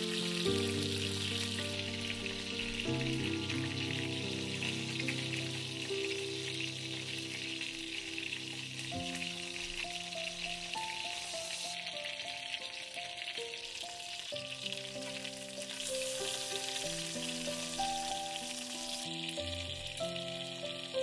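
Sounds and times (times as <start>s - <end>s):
background music with held chords: 0.0s - 21.0s
food sizzling in a pan: 0.0s - 21.0s.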